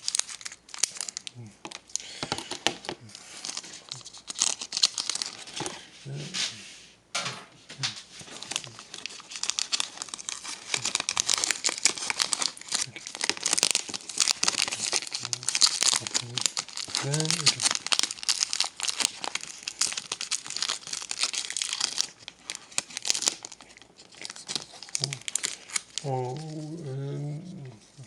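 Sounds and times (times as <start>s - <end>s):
wrapper crinkling and tearing: 0.0s - 5.9s, 8.1s - 28.0s.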